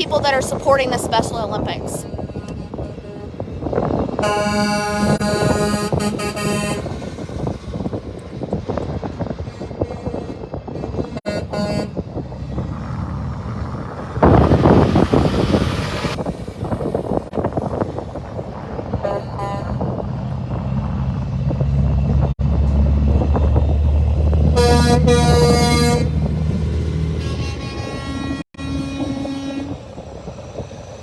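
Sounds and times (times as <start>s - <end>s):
truck engine rumbling: 0.0s - 31.0s
truck horn: 2.1s - 7.2s, 10.7s - 12.0s, 19.0s - 20.0s, 24.5s - 26.3s, 27.1s - 29.8s
loud rushing burst: 12.3s - 18.1s.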